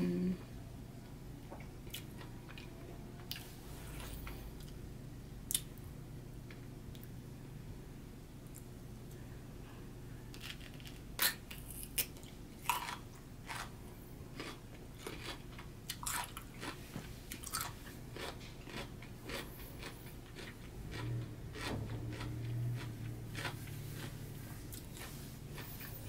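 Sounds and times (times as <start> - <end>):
crunching and chewing cucumber: 1.8 - 3.5, 10.3 - 26.0.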